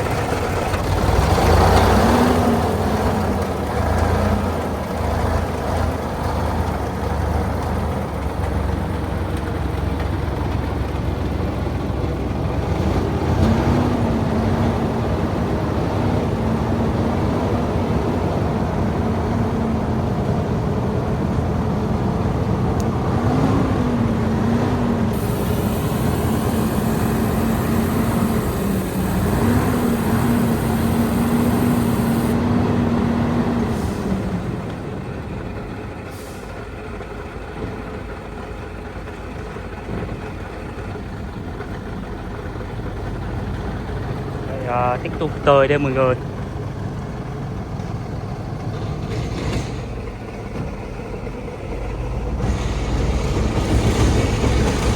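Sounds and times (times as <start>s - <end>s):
diesel truck engine under load: 0.0s - 54.9s
steady droning note: 25.2s - 32.4s.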